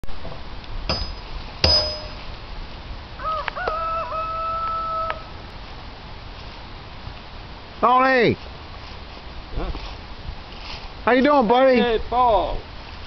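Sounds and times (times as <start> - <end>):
sharp metallic clangs: 0.9 - 2.3
rooster crowing: 3.2 - 5.4.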